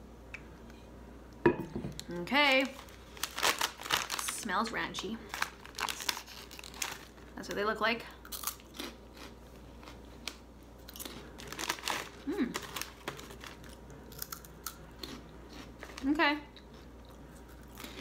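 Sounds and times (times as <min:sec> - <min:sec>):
snack bag crinkling: 0:02.5 - 0:07.4, 0:08.2 - 0:16.0
crunching puffed snack: 0:02.7 - 0:04.4, 0:05.2 - 0:07.3, 0:08.2 - 0:16.1.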